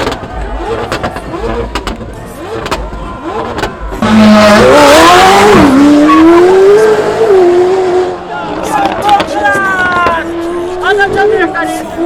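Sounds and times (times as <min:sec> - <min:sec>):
tyres squealing: 0:00.0 - 0:07.3
car engine revving hard: 0:00.0 - 0:09.3.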